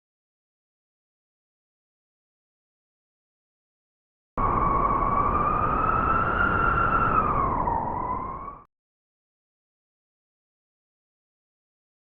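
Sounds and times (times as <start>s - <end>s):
low wind rumble: 4.4s - 8.7s
wolf howling: 4.4s - 8.7s.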